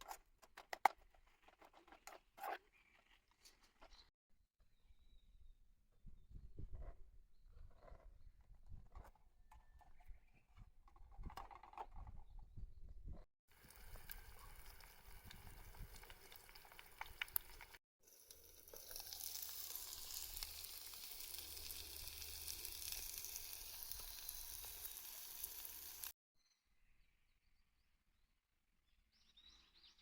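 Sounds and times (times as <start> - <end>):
food sizzling in a pan: 13.5 - 26.2.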